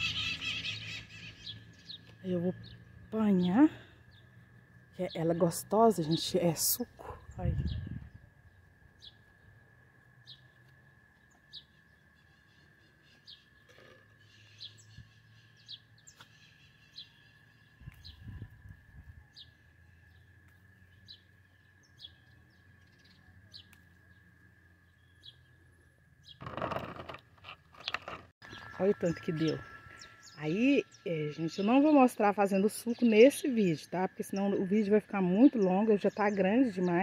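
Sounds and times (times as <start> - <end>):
thin high tone: 28.4 - 31.8.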